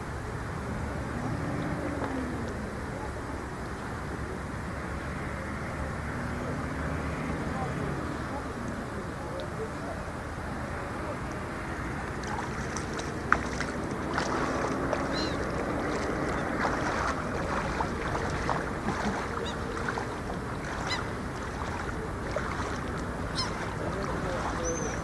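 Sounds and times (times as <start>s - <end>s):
lake water lapping: 11.6s - 25.0s
high bird calls: 15.0s - 22.0s, 23.3s - 25.0s.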